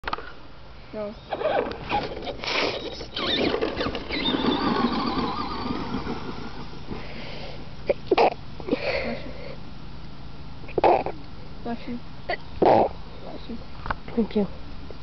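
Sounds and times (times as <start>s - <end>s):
tyre and gear noise: 1.2s - 7.6s
electric motor whining: 1.4s - 7.1s.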